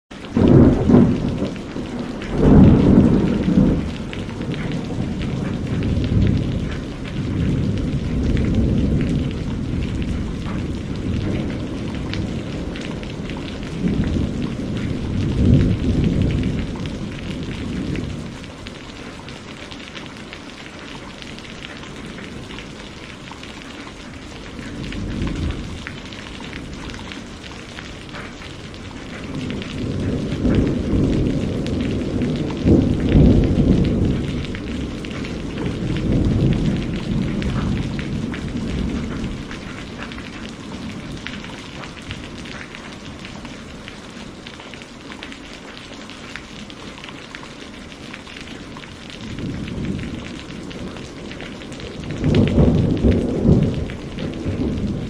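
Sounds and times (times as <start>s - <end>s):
heavy rain falling: 0.1s - 55.0s
thunder rumbling: 0.2s - 45.0s, 48.0s - 55.0s.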